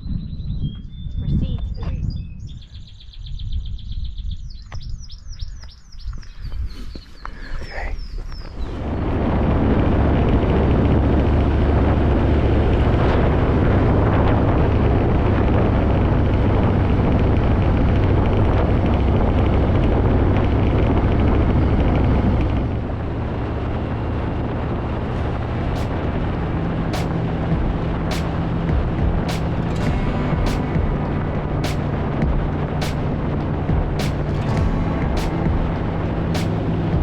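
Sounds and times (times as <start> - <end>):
road and wind noise: 0.0 - 37.0
motorcycle engine running: 8.8 - 37.0.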